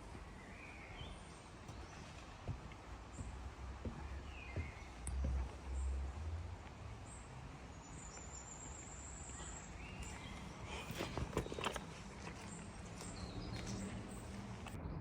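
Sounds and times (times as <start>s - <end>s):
low rumbles on microphone: 0.0s - 8.6s.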